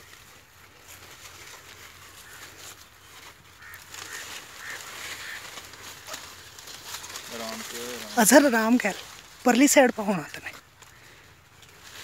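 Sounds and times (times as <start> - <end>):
faint short bird calls: 3.6 - 6.3.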